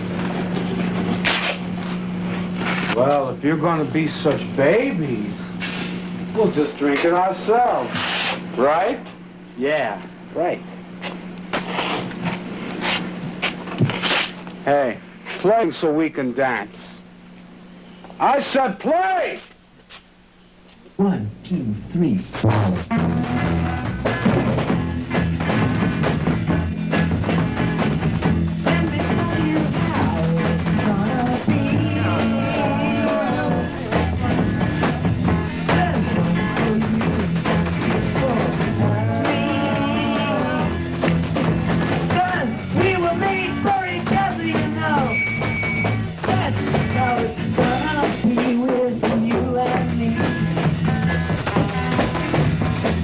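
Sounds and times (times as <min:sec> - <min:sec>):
wavering guitar lead line: 0:21.6 - 0:53.0
garage rock band playing: 0:22.1 - 0:53.0
drum beat: 0:22.3 - 0:53.0.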